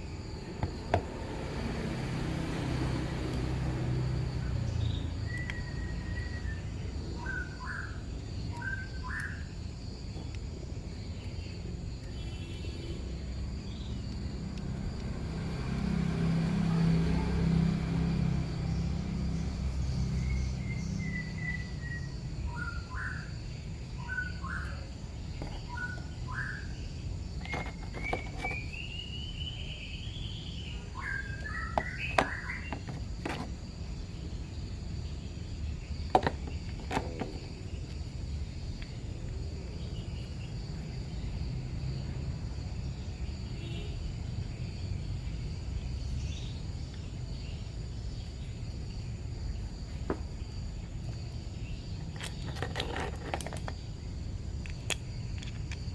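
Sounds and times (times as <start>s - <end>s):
birds chirping: 0.0s - 15.9s, 18.1s - 42.2s
insect drone: 0.0s - 55.9s.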